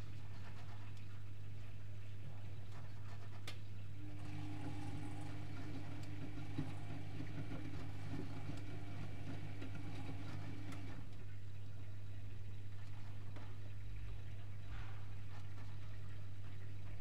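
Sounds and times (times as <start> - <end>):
washing machine low hum: 0.0 - 17.0
washing machine motor whine: 3.9 - 11.4.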